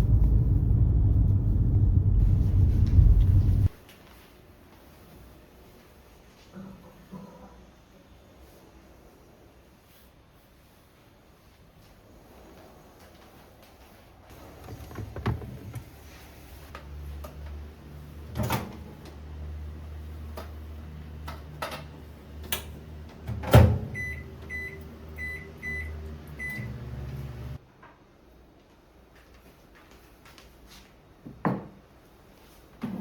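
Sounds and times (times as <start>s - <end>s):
microwave oven humming: 17.0s - 27.6s.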